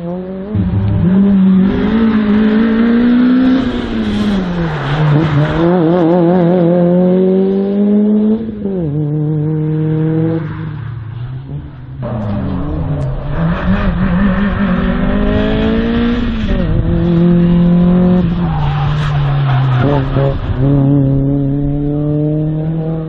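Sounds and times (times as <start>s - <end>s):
race car engine revving: 0.0s - 23.0s.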